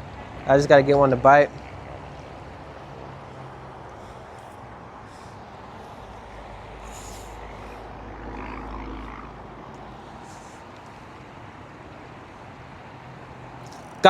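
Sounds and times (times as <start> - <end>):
passing engine rumble: 0.0 - 14.0
urban traffic hum: 0.0 - 14.0.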